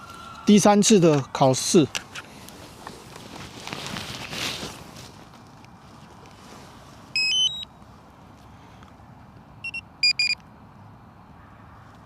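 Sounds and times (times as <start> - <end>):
short electronic beeps: 7.2 - 7.7, 9.6 - 10.4.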